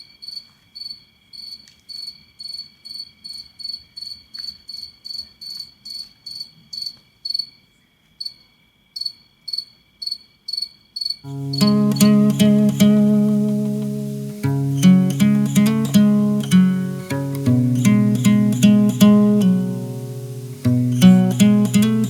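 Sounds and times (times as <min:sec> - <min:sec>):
cricket chirping: 0:00.2 - 0:22.0
acoustic guitar music: 0:11.3 - 0:22.0.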